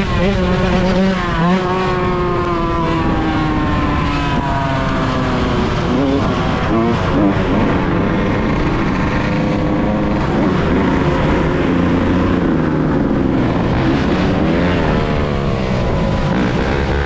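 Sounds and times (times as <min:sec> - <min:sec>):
two-stroke motorcycle engine running: 0:00.0 - 0:17.0.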